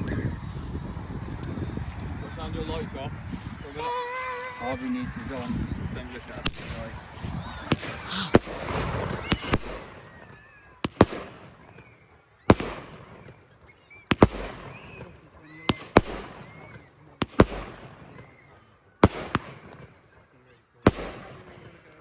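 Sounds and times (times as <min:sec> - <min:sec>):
fireworks bangs: 0:01.3 - 0:22.0
fireworks whistling: 0:03.3 - 0:20.2, 0:20.9 - 0:21.8.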